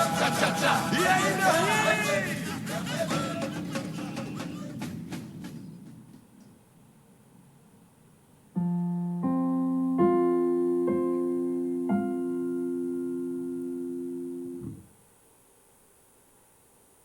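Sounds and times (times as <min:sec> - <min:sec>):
piano notes building a chord: 0:08.6 - 0:14.8.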